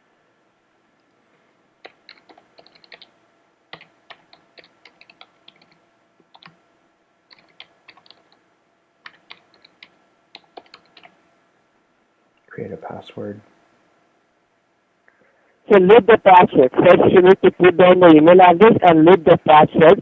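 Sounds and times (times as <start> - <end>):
keyboard typing clicks: 1.8 - 6.6, 7.3 - 8.4, 9.0 - 11.2.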